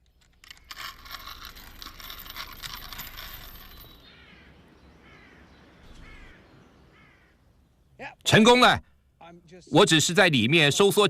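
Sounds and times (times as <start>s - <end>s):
metal weights clinking and rattling: 0.0s - 4.2s
bird calling: 2.8s - 8.1s.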